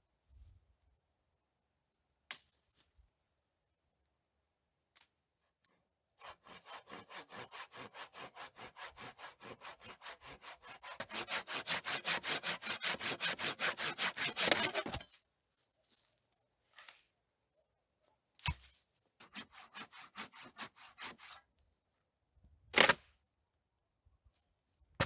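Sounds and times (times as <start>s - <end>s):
hand saw cutting wood: 6.2s - 15.0s, 19.2s - 21.4s, 22.8s - 23.0s.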